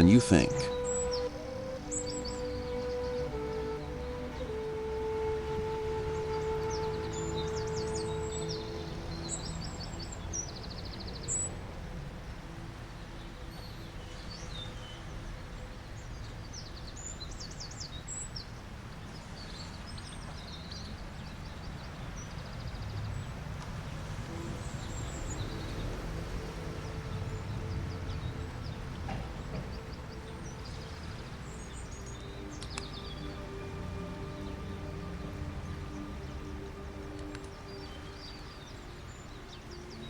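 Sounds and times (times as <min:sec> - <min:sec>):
soft music drone: 0:00.0 - 0:14.4, 0:24.2 - 0:40.0
outdoor background hiss: 0:00.0 - 0:40.0
small birds chirping: 0:00.0 - 0:40.0.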